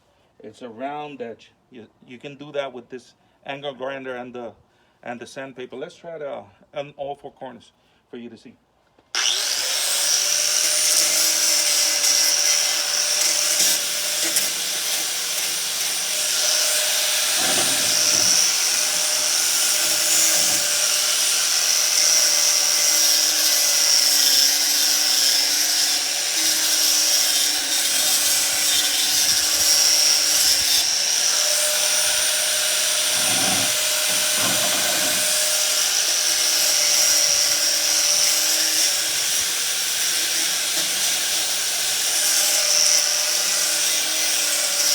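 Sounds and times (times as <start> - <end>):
angle grinder sanding wood: 9.2 - 44.9.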